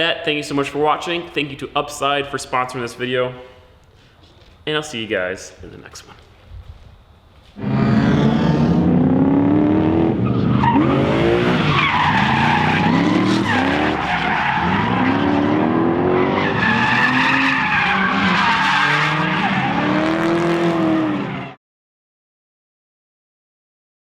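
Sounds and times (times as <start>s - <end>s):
car engine revving hard: 7.6s - 21.6s.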